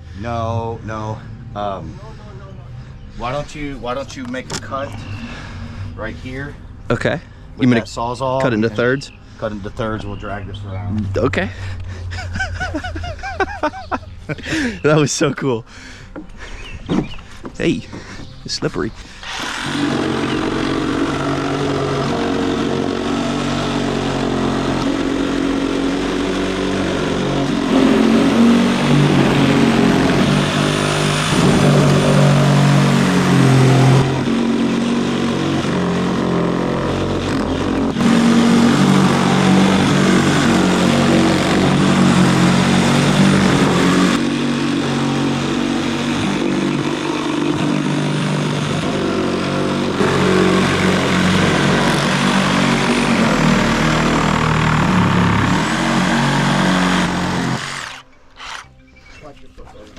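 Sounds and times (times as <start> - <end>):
reciprocating saw cutting wood: 19.0 - 58.8.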